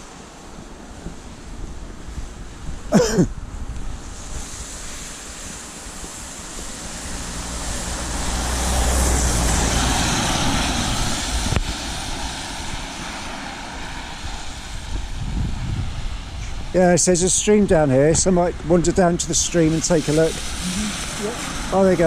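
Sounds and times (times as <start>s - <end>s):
tyres hissing through water: 2.9s - 3.4s, 4.0s - 15.2s, 15.9s - 22.0s
vehicle engine hum: 6.7s - 12.4s.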